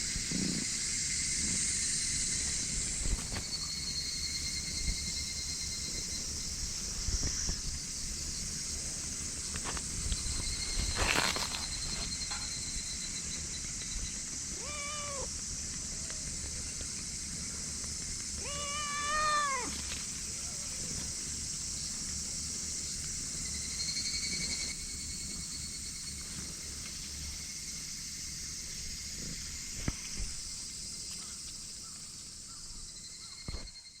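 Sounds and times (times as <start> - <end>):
steady high-pitched hiss: 0.0 - 34.0
cat meowing: 14.5 - 15.3, 18.4 - 19.8.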